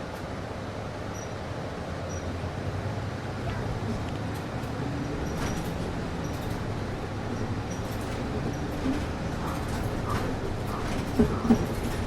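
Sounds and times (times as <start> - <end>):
bus rumble: 0.0 - 12.0.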